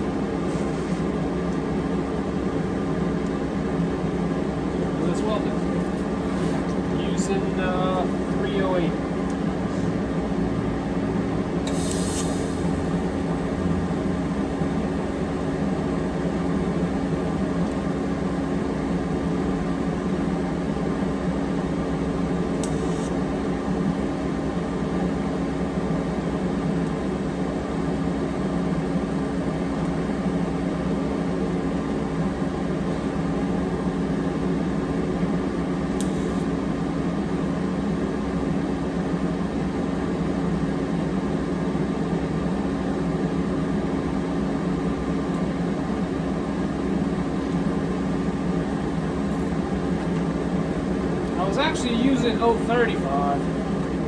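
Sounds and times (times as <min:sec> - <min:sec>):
welder humming and hissing: 0:11.6 - 0:17.2, 0:19.4 - 0:23.5, 0:35.9 - 0:36.6.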